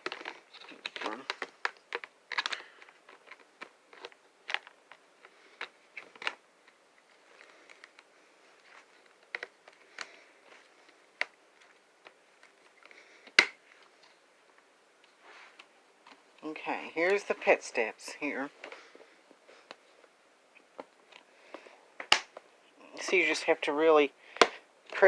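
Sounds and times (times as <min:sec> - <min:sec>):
plastic pieces clicking together: 0:00.0 - 0:06.4.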